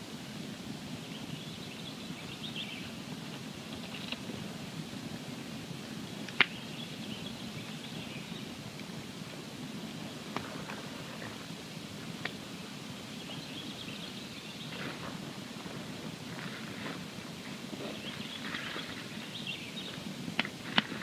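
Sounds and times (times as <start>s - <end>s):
campfire low rush: 0.0s - 21.0s
fire crackles and pops: 3.0s - 13.4s, 14.7s - 21.0s.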